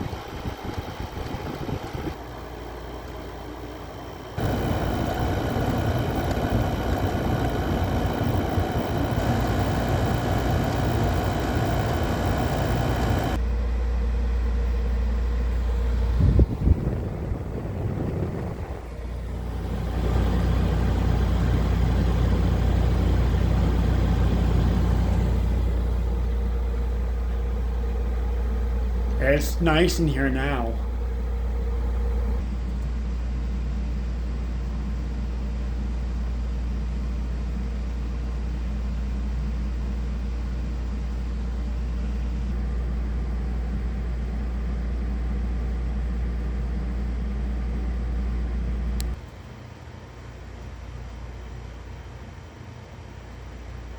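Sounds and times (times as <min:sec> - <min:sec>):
air conditioner humming: 0:00.0 - 0:13.7, 0:14.4 - 0:36.4.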